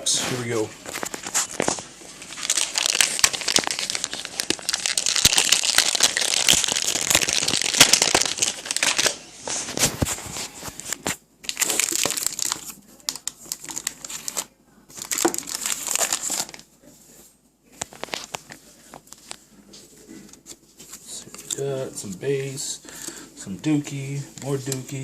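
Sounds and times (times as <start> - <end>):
foil wrapper crinkling and tearing: 0.8 - 16.6.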